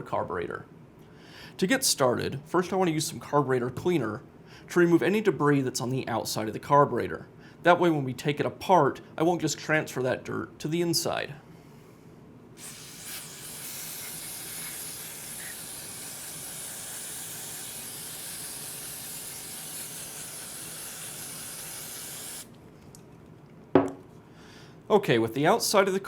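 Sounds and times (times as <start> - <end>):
aerosol spray hissing: 12.6 - 22.5.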